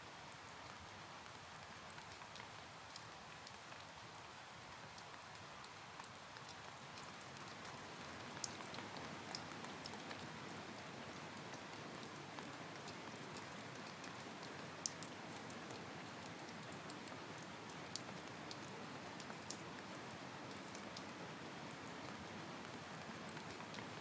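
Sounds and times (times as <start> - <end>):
raindrop ticks: 1.9 - 4.2, 4.9 - 21.1, 23.3 - 23.8.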